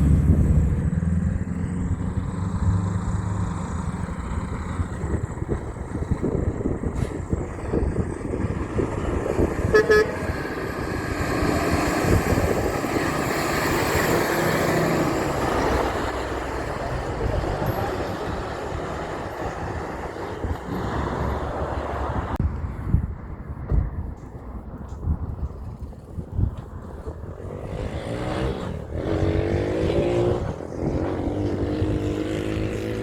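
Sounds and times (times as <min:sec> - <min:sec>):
truck passing by: 0:00.0 - 0:23.4, 0:24.4 - 0:33.0
short horn toot: 0:09.7 - 0:10.2.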